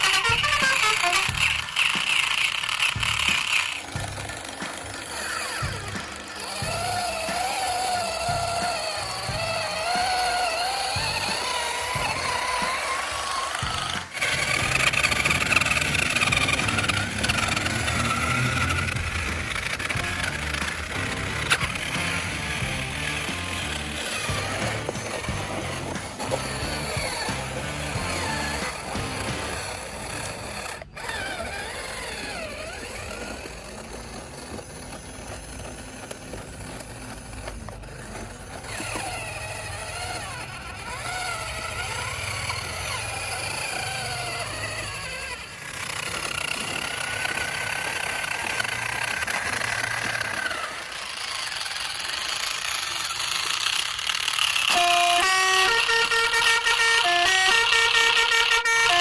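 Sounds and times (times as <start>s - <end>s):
toy engine rumble: 0.0s - 59.0s
multi-note horn tune: 54.7s - 59.0s.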